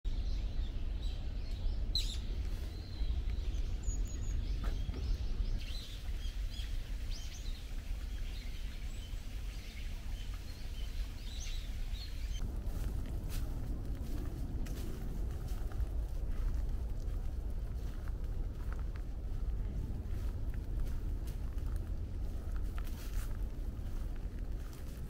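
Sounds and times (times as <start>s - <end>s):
small birds chirping: 0.1s - 12.4s
low outdoor rumble: 0.1s - 25.0s.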